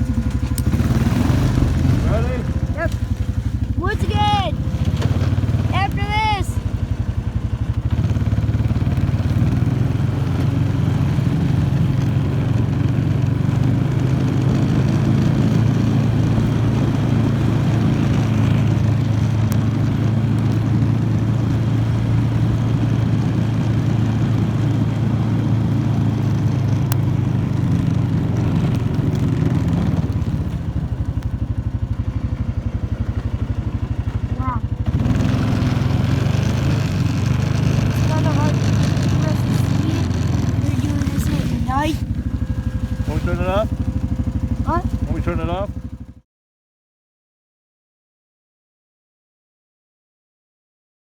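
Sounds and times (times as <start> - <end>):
atv engine running: 0.0 - 46.2.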